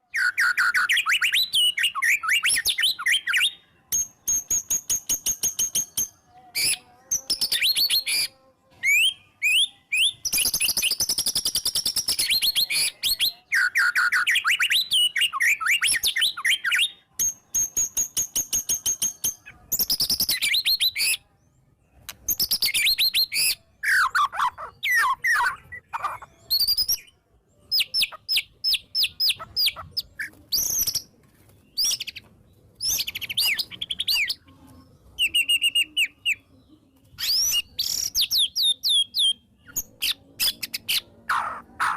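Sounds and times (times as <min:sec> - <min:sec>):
songbird singing whistled phrases: 0:00.0 - 0:21.3, 0:22.0 - 0:34.4, 0:35.1 - 0:41.9.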